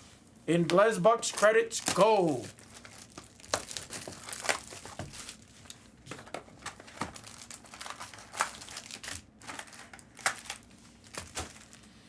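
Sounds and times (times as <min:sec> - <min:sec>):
plastic wrapping crinkling and tearing: 0:01.2 - 0:12.0.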